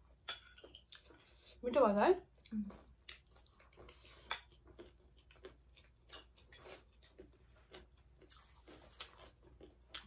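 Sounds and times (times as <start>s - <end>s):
chewing crunchy food: 2.2s - 10.0s.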